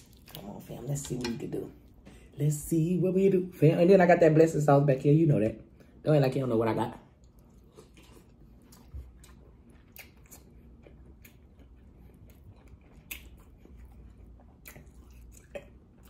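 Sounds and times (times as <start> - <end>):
person chewing with wet clicks: 0.0 - 0.7, 7.1 - 16.0.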